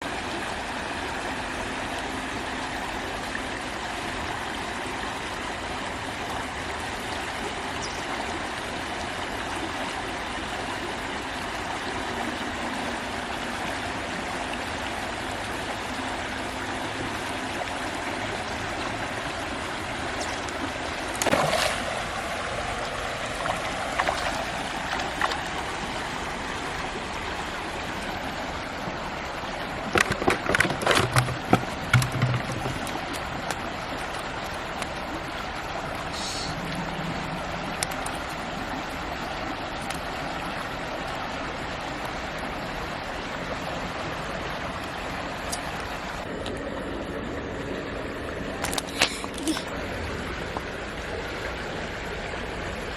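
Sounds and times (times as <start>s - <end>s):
flowing river water: 0.0s - 52.9s
water disturbance: 14.2s - 27.9s, 28.5s - 52.9s.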